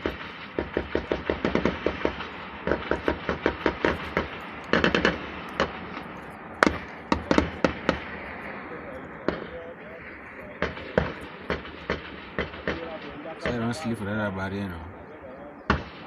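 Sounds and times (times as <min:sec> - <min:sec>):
automatic gunfire: 0:00.0 - 0:06.0, 0:06.6 - 0:08.4, 0:09.2 - 0:13.9, 0:15.7 - 0:16.0
single gunshots: 0:00.0 - 0:06.0, 0:06.6 - 0:08.4, 0:09.2 - 0:14.0, 0:15.6 - 0:16.0.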